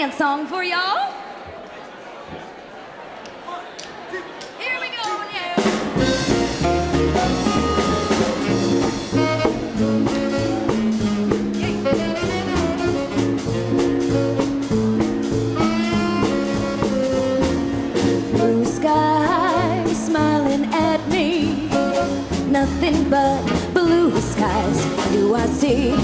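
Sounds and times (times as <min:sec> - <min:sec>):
drum kit beat: 0:05.6 - 0:26.0
bass: 0:05.9 - 0:26.0
electric guitar: 0:05.9 - 0:26.0
tenor saxophone: 0:06.0 - 0:26.0.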